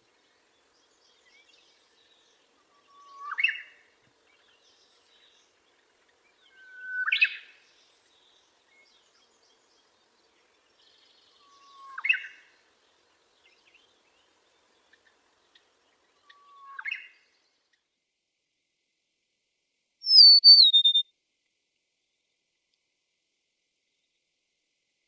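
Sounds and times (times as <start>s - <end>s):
faint bird chirps: 0.0s - 12.6s, 13.4s - 17.9s, 20.0s - 21.1s
bird call with harsh burst: 20.1s - 21.0s.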